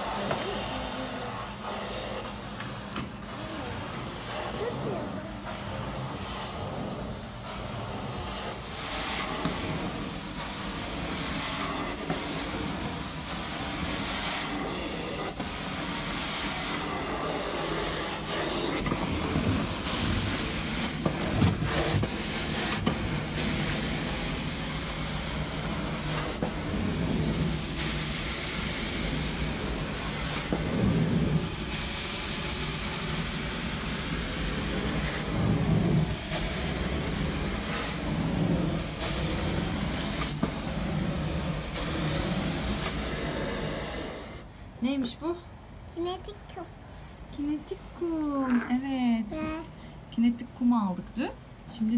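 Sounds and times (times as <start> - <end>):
carpet cleaning machine running: 0.0 - 44.5.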